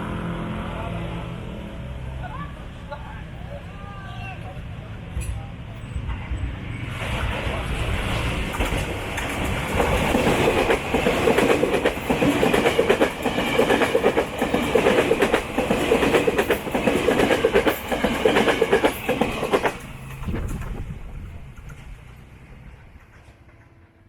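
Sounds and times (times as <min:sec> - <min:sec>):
train wheels clattering over rail joints: 0:07.1 - 0:24.0.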